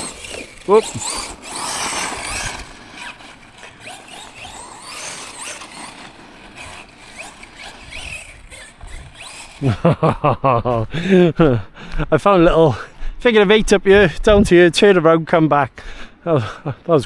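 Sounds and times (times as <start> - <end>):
rc truck electric motor whining: 0.0 - 10.1
tyres on rough ground: 0.0 - 11.2.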